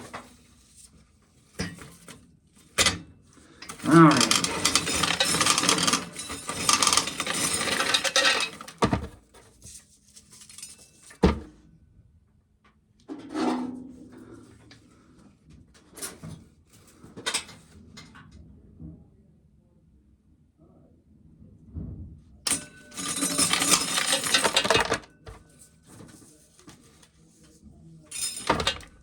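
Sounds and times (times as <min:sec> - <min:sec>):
dry corn rattling: 0:03.7 - 0:08.8
knocks and clinks: 0:03.7 - 0:09.2, 0:22.5 - 0:25.4, 0:28.1 - 0:29.0.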